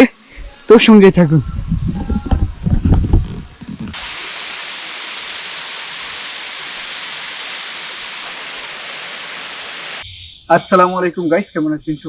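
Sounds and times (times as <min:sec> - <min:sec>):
waterfall rushing: 0:04.0 - 0:10.0.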